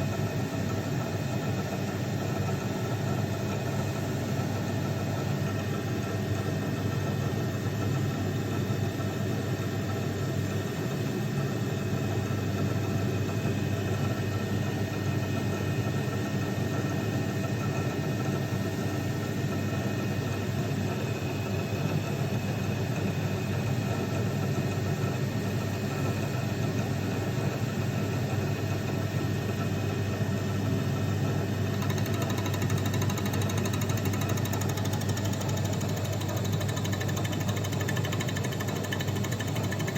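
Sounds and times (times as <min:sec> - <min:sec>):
milling machine running: 0:31.5 - 0:39.9.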